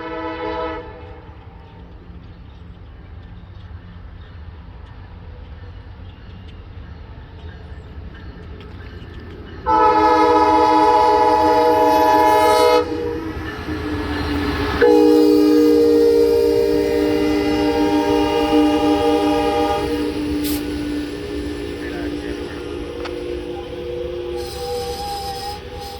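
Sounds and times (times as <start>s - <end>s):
locomotive air horn blasts: 0.0s - 1.3s, 9.7s - 13.9s, 14.5s - 25.9s
train rumbling: 0.0s - 25.9s.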